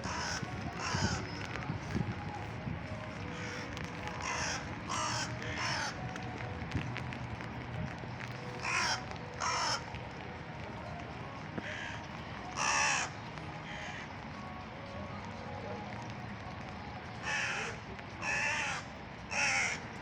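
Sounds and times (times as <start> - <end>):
gulls calling harshly: 0.0 - 6.6, 8.4 - 10.2, 11.4 - 14.2, 17.2 - 20.0.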